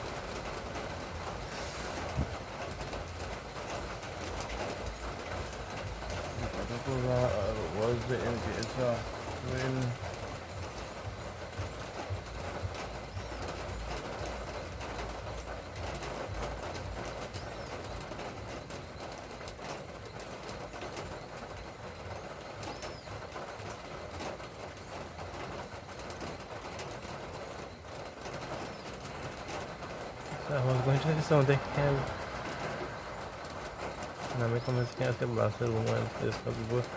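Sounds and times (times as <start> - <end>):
light rain falling: 0.0 - 36.9
faint bird chirps: 6.1 - 24.0, 27.3 - 36.9.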